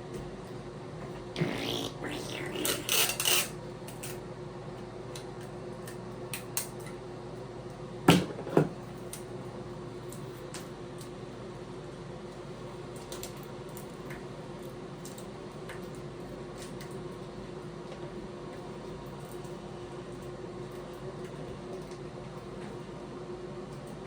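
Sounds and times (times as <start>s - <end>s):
light clicks and crinkles: 12.9s - 17.0s.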